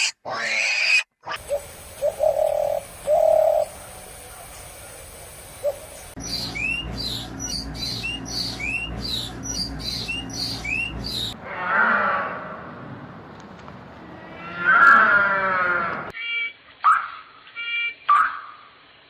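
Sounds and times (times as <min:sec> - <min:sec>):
dove cooing: 0:01.4 - 0:06.9
bird chirping: 0:01.4 - 0:11.4
background noise: 0:11.4 - 0:19.0.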